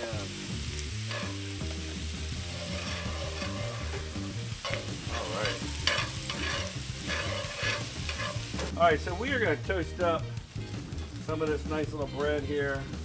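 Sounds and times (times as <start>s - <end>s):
shrimp sizzling in a skillet: 0.0s - 13.0s
metal tongs clacking on pan: 1.1s - 1.5s, 2.6s - 8.7s.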